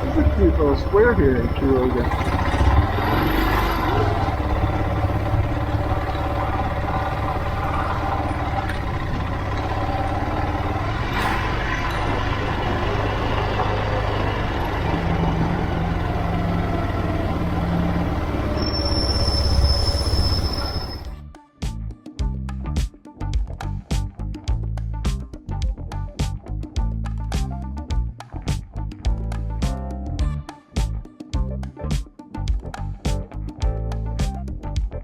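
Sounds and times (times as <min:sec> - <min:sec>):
continuous low rumble: 0:00.0 - 0:21.2
motorcycle engine running: 0:00.0 - 0:21.2.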